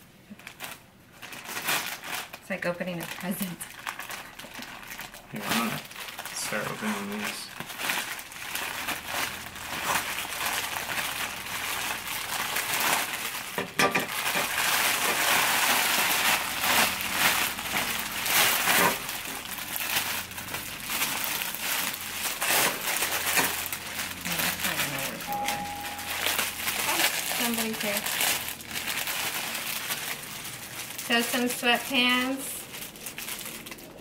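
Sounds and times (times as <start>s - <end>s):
plastic bags crinkling: 0.3s - 34.0s.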